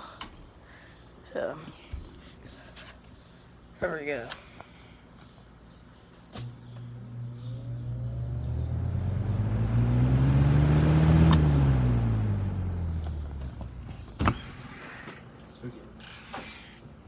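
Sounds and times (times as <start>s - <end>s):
vehicle driving past: 7.0s - 13.8s.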